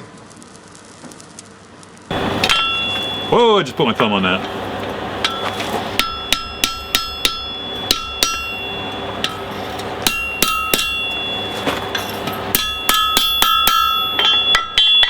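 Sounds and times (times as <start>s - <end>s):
hammer striking metal on anvil: 2.1s - 15.0s.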